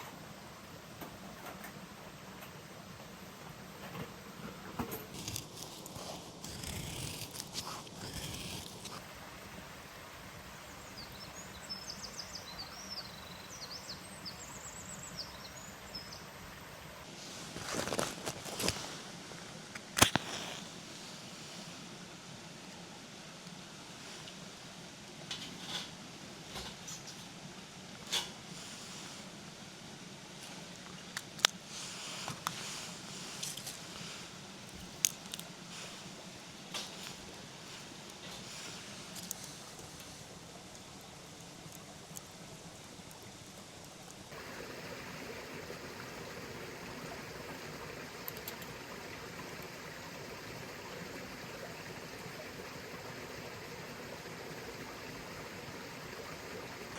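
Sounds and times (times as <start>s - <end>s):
steady background hiss: 0.0s - 56.9s
rustling: 4.0s - 9.1s, 17.2s - 21.8s, 31.7s - 40.4s
campfire crackling and popping: 5.1s - 9.1s, 19.7s - 20.7s, 34.6s - 35.5s, 39.1s - 46.8s, 48.2s - 48.8s.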